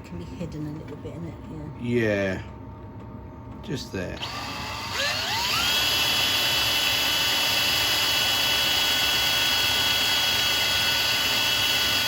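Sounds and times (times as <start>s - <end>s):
small electric drill whining: 4.2s - 12.0s.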